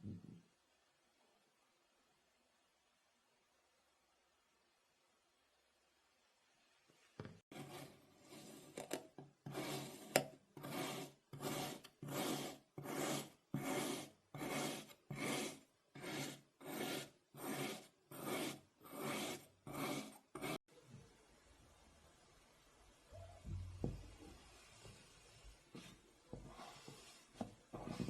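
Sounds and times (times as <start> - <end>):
blade rasping through sand: 9.5 - 20.6.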